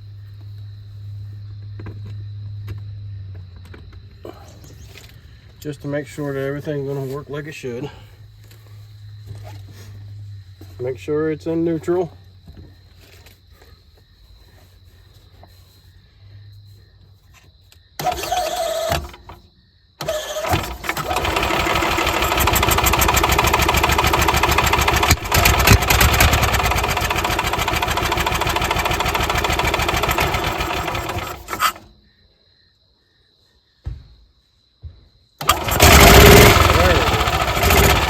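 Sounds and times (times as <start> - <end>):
engine cranking: 18.0 - 19.4, 20.0 - 31.9, 35.4 - 38.0
golf cart engine running: 18.0 - 19.4, 20.0 - 31.9, 35.4 - 38.0.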